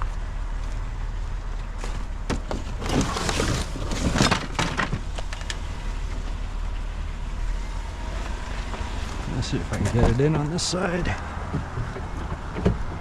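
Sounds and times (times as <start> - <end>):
scrap metal clattering and scraping: 1.8 - 5.5.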